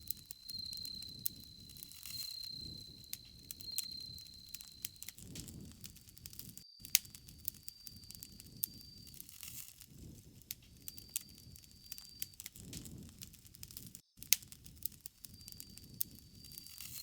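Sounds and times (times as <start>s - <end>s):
high insect trill: 0.0s - 9.8s, 10.7s - 12.7s, 15.3s - 17.0s
campfire crackling and popping: 0.0s - 17.0s.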